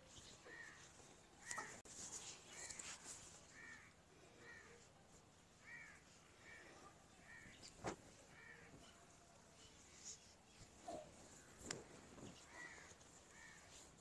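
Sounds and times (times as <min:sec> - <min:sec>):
harsh caw-like bird calls: 0:03.5 - 0:04.8, 0:05.6 - 0:07.6, 0:08.3 - 0:09.0, 0:10.9 - 0:13.9.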